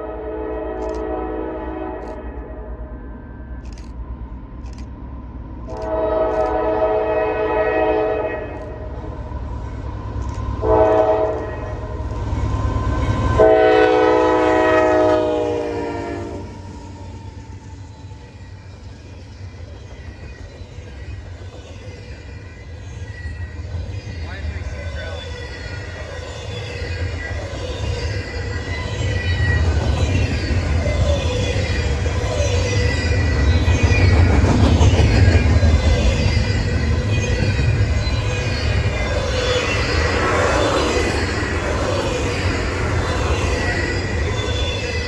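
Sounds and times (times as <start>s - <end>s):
locomotive air horn blasts: 0.0s - 2.6s, 5.8s - 8.9s, 10.6s - 11.9s, 13.4s - 16.5s
train rumble: 0.0s - 45.0s.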